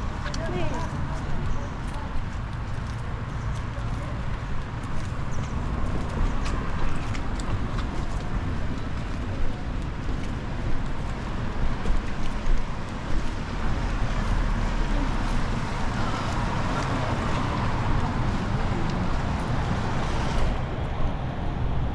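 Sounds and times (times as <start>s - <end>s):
traffic passing on wet roads: 0.0s - 21.9s
wind rumbling on microphone: 0.0s - 21.9s.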